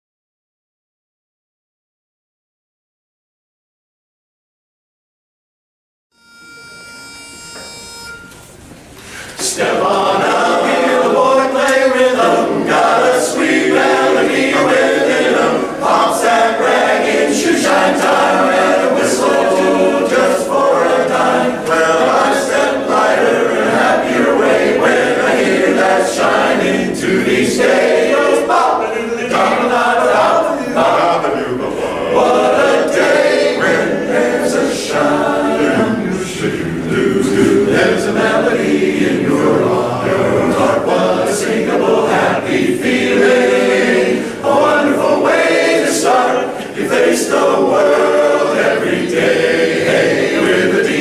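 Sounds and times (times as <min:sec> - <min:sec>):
single steady note: 0:06.2 - 0:08.6
male chorus singing a cappella: 0:09.4 - 0:51.0.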